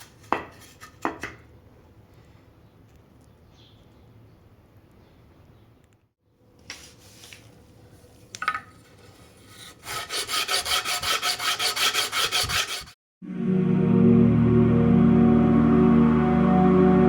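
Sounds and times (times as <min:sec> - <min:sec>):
sanding wood back and forth: 0:09.7 - 0:13.0.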